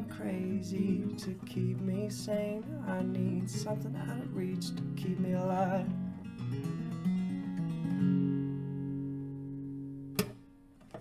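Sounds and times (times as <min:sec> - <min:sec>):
acoustic guitar strumming chords: 0:00.0 - 0:11.0
sharp click: 0:10.2 - 0:11.0.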